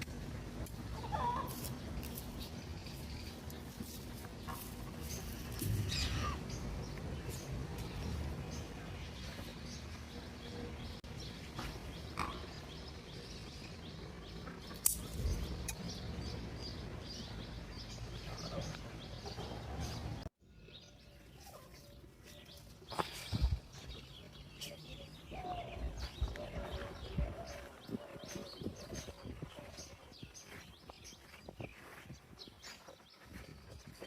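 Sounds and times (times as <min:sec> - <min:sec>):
hens chirping: 0:00.1 - 0:14.8, 0:21.0 - 0:34.0
chicks peeping: 0:00.6 - 0:10.0, 0:21.5 - 0:34.0
wind noise: 0:23.2 - 0:23.7.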